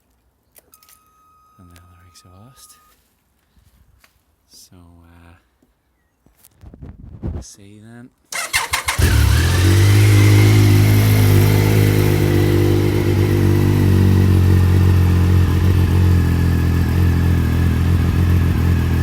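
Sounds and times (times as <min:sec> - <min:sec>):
motorcycle engine starting and idling: 0:08.3 - 0:19.0.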